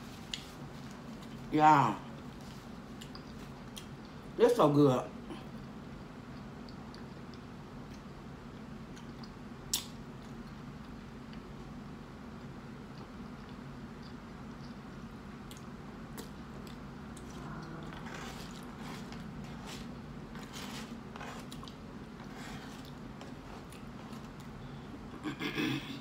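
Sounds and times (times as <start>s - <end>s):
steady low hum: 0.0s - 26.0s
chewing and wet smacking: 2.3s - 4.4s, 5.5s - 11.5s, 12.3s - 20.1s, 21.4s - 22.2s, 22.8s - 24.6s.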